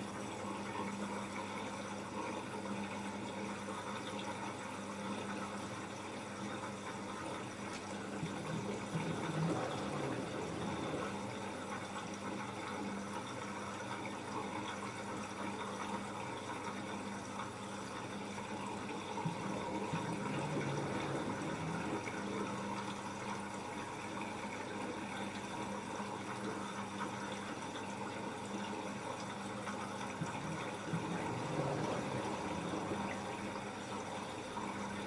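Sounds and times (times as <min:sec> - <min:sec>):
water sloshing in washing machine: 0:00.0 - 0:35.0.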